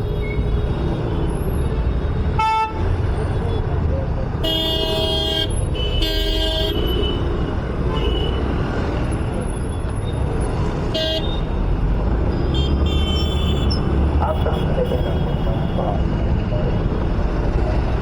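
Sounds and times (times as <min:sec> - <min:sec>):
engine and road rumble: 0:00.0 - 0:18.0
vehicle horns honking: 0:02.3 - 0:03.7, 0:04.4 - 0:08.6, 0:10.9 - 0:11.6, 0:12.4 - 0:15.9.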